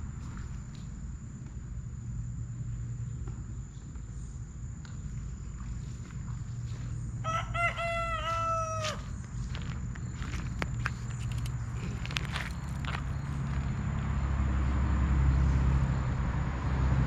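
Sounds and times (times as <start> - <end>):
rooster crowing: 7.2 - 9.2.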